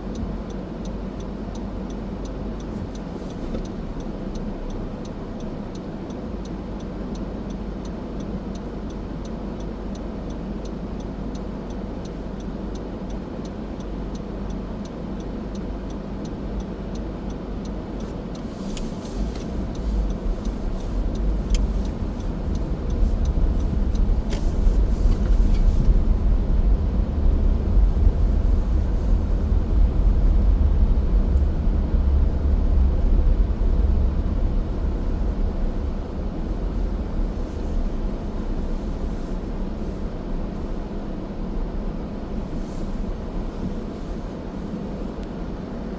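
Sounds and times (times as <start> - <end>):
light ticking: 0.0 - 45.6
car road and engine noise: 0.0 - 45.9
deep rumble: 15.1 - 45.9.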